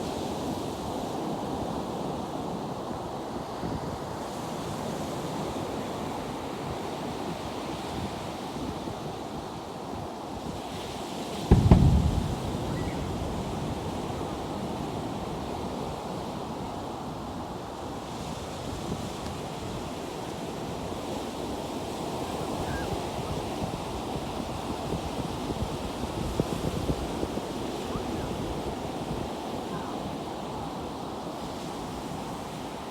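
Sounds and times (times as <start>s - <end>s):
low thump: 11.5s - 14.2s
ocean surf washing: 11.5s - 15.6s
wind rushing on microphone: 11.5s - 15.6s.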